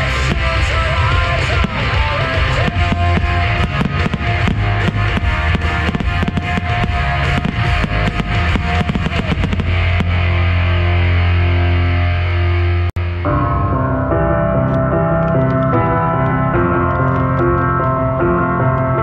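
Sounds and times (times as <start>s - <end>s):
firework bangs and crackles: 0.0s - 10.4s
held low chord: 0.0s - 19.0s
rock music with guitar and drums: 0.0s - 19.0s.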